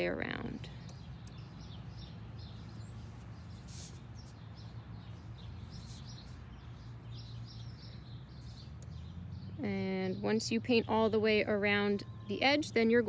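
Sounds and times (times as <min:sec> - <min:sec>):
small birds chirping: 0:00.0 - 0:13.0
soft rustles: 0:02.5 - 0:06.5.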